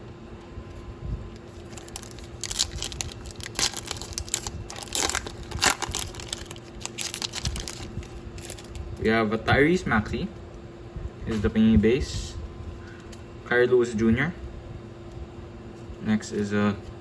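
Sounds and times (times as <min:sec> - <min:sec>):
faint steady hum: 0:00.0 - 0:17.0
wrapper tearing and crinkling: 0:01.4 - 0:08.9.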